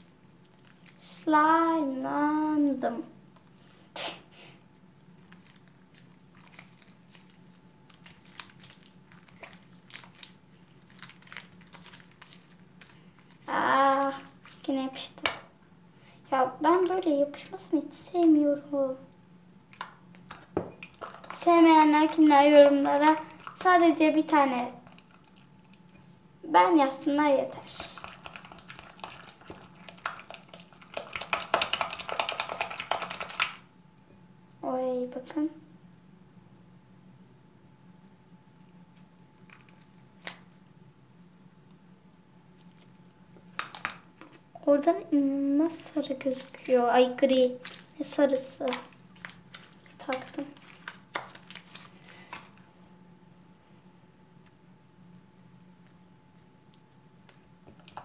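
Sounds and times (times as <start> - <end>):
slime clicking and popping: 48.6 - 52.6.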